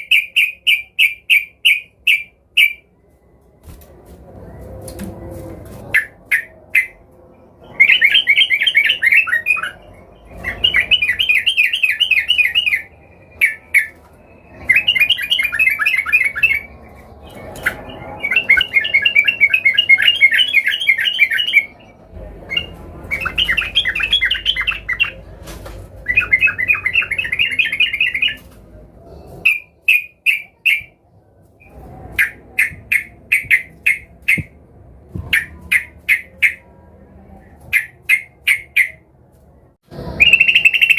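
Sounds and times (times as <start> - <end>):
bulbul chattering song: 0.0 - 2.9, 5.9 - 7.0, 7.6 - 25.2, 26.0 - 28.4, 29.4 - 31.0, 31.6 - 34.6, 35.3 - 36.8, 37.7 - 39.0, 40.0 - 40.9.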